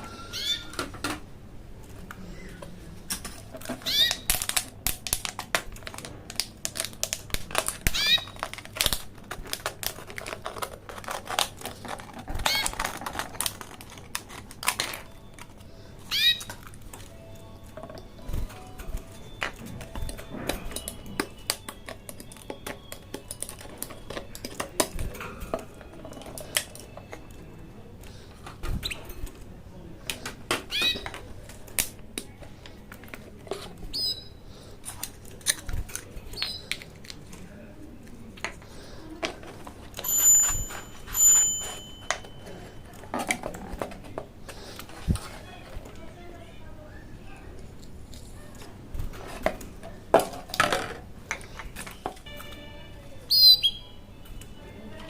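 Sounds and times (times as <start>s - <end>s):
small hard objects clicking: 3.1s - 15.6s, 19.4s - 27.4s
bell-like ring: 40.0s - 42.8s, 52.2s - 53.2s.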